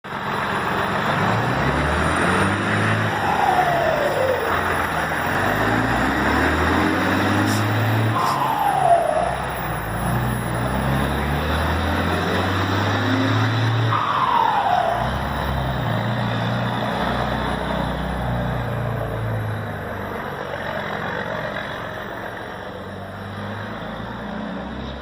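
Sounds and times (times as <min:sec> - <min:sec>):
diesel truck engine running: 0:00.1 - 0:25.0
short falling whine: 0:07.4 - 0:11.2, 0:11.8 - 0:17.0.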